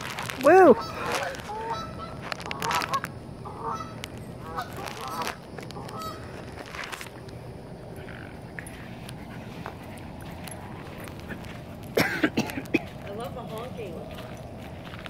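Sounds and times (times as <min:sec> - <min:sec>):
geese honking: 0:00.3 - 0:07.0.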